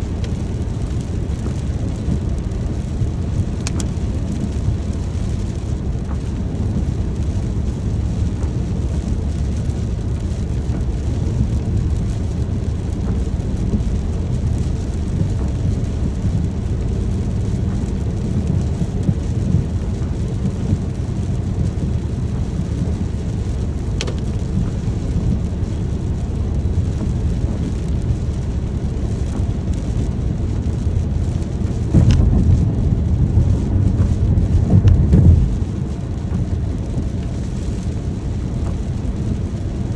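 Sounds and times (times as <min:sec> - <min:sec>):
steady rain: 0:00.0 - 0:39.9
thunder rumbling: 0:00.0 - 0:39.9
sharp drip ticks: 0:24.0 - 0:24.7.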